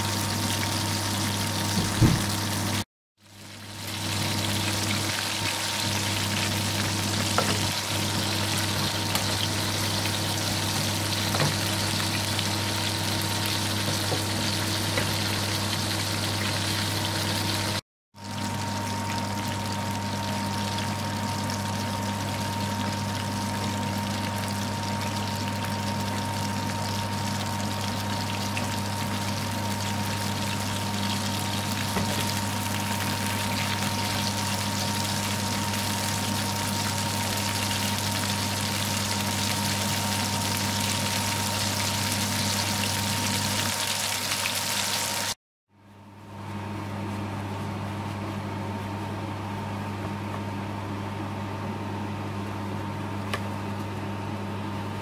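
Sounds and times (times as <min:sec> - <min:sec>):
burger patties sizzling in pan: 0:03.2 - 0:45.4.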